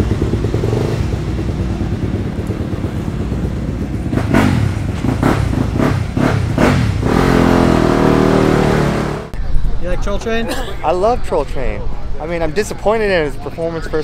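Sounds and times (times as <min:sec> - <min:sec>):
dirt bike engine revving: 0:00.0 - 0:09.3.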